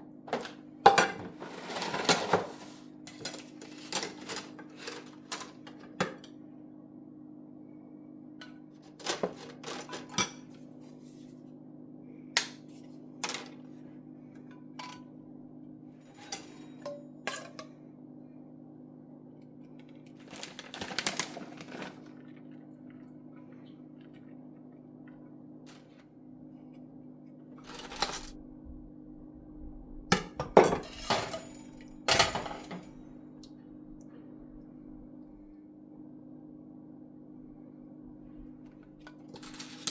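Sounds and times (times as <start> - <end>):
utensils and dishes clattering: 0.3 - 6.2, 9.0 - 10.5, 16.0 - 17.8, 27.6 - 28.4, 30.2 - 33.0, 39.1 - 39.9
steady low hum: 2.0 - 9.2, 10.1 - 20.7, 21.6 - 39.9.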